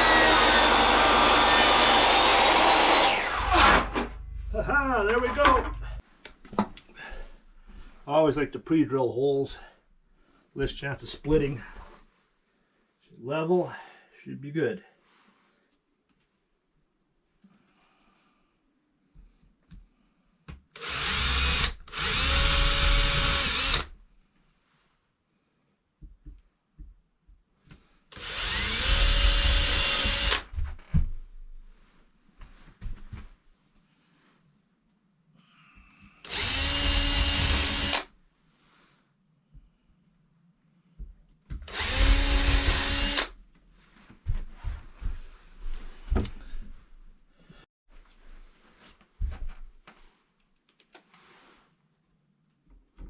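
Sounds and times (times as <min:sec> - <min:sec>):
electric drill drilling into wood: 0:00.0 - 0:04.1, 0:20.8 - 0:23.9, 0:28.1 - 0:30.5, 0:36.2 - 0:38.1, 0:41.7 - 0:43.4.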